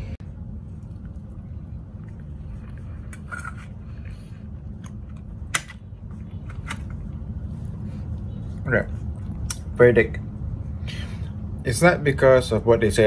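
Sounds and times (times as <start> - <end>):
low hum: 0.0 - 13.0
man chewing: 0.2 - 6.3, 9.0 - 9.7
mouth clicks and smacks: 9.1 - 9.8.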